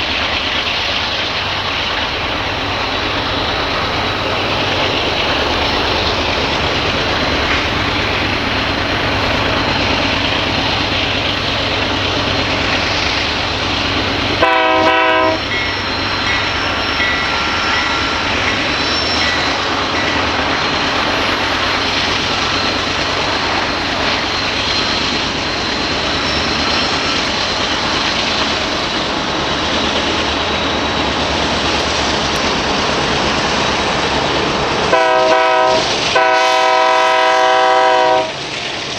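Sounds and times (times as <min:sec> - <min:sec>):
diesel locomotive drone: 0:00.0 - 0:38.9
train wheels rumbling on rail: 0:00.0 - 0:38.9
locomotive horn blast: 0:02.4 - 0:18.3, 0:34.9 - 0:38.4.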